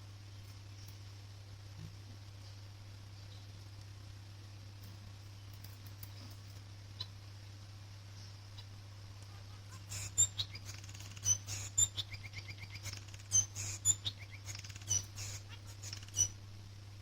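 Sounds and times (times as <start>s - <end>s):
steady low hum: 0.0s - 17.0s
finch singing: 8.1s - 16.4s.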